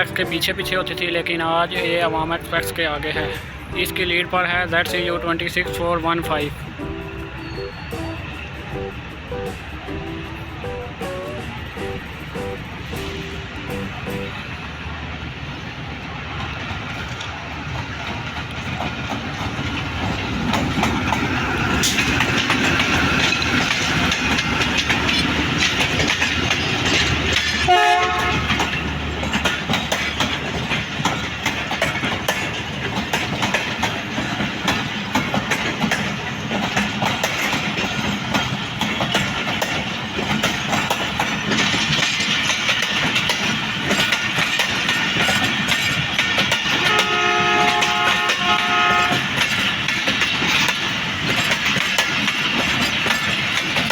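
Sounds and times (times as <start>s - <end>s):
train wheels clattering: 6.7s - 53.9s
locomotive horn: 27.6s - 28.7s, 46.8s - 49.4s.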